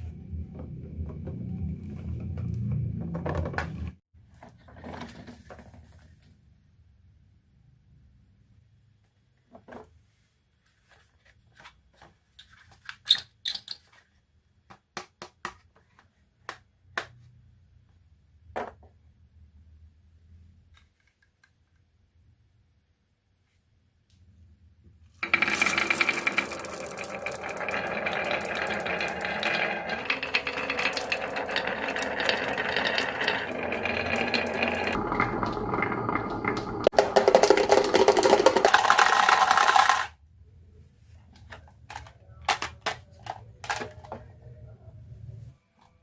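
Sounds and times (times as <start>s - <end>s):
marble clicks: 25.2s - 40.1s
marbles rattling down a track: 25.2s - 40.2s.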